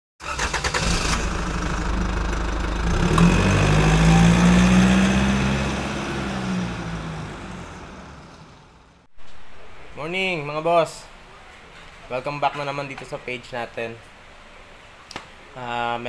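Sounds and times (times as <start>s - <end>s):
car engine starting and revving: 0.2s - 9.1s.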